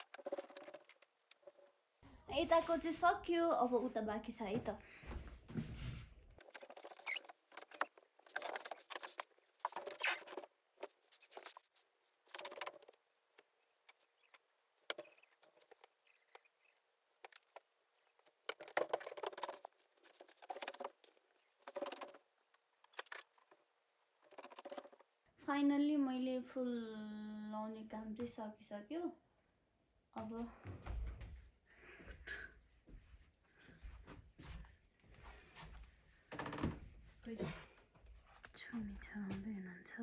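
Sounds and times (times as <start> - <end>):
rustling: 0.0 - 3.2, 4.3 - 25.1.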